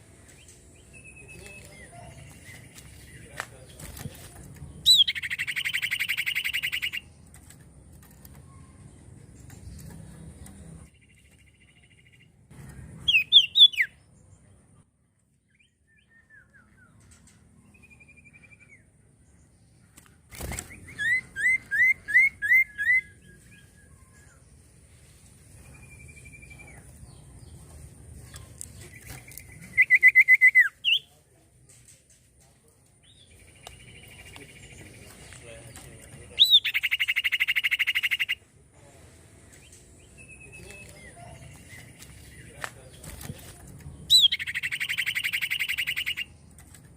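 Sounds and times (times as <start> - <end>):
bird whistling song: 4.8 - 7.1, 13.0 - 14.0, 15.5 - 17.1, 20.7 - 24.4, 29.0 - 31.1, 36.4 - 38.4, 44.1 - 46.4.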